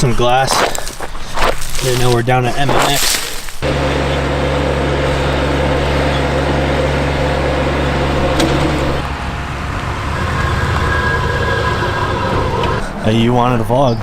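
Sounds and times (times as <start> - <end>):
vehicle engine running: 3.6 - 13.1.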